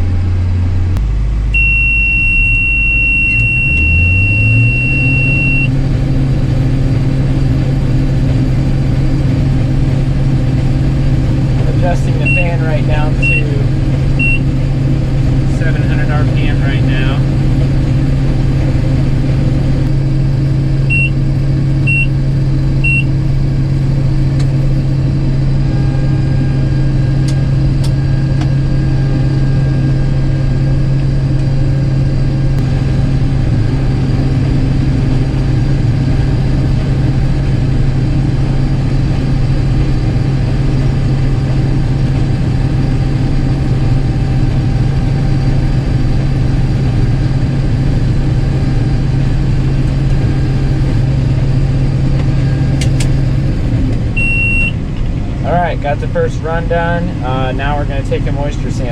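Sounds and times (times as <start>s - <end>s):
combine harvester running: 0.0s - 58.9s
low fan hum: 0.0s - 58.9s
high electronic beeps: 1.6s - 5.7s, 12.2s - 13.6s, 14.2s - 14.4s, 20.9s - 21.2s, 21.9s - 22.1s, 22.8s - 23.1s, 54.2s - 54.8s.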